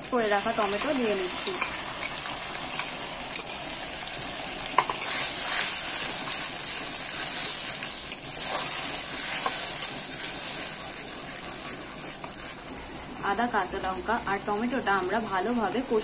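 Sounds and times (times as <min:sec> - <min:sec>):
paste sizzling in hot oil: 0:00.0 - 0:16.0
metal spatula scraping pan: 0:04.8 - 0:09.9.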